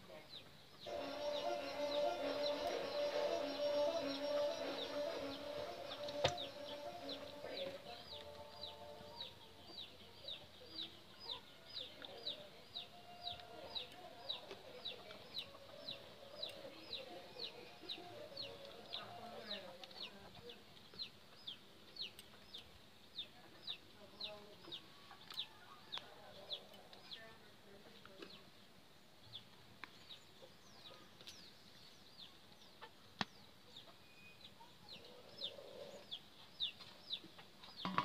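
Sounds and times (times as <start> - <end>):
bird peeping: 0.4 - 27.2.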